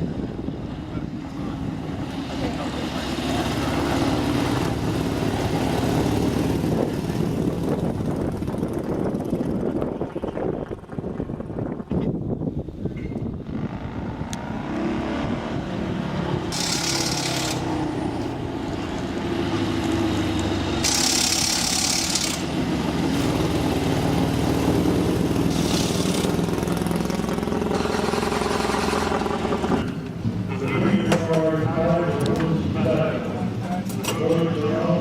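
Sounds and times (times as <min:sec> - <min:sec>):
race car engine running: 0:00.0 - 0:11.8, 0:13.3 - 0:35.0.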